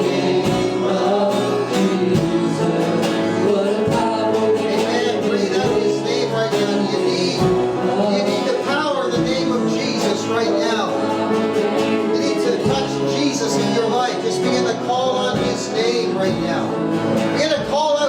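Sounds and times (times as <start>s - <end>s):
bass: 0.0s - 18.0s
guitar: 0.0s - 18.0s
person singing: 0.0s - 18.0s.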